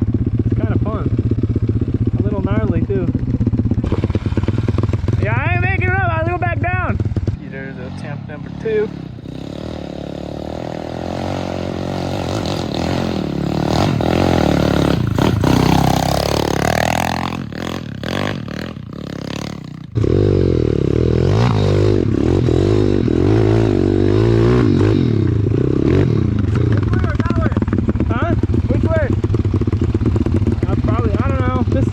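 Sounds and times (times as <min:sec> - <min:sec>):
motorbike engines revving: 0:00.0 - 0:31.9.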